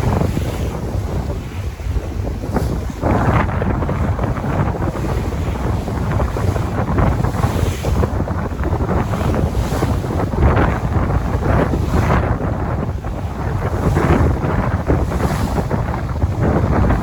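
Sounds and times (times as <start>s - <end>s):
sea waves breaking on shore: 0.0s - 17.0s
wind buffeting the microphone: 0.0s - 17.0s.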